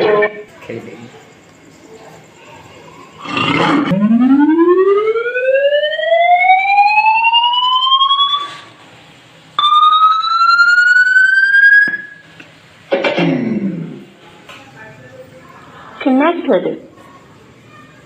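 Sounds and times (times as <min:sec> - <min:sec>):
siren wailing: 0:03.2 - 0:08.7, 0:09.6 - 0:12.3.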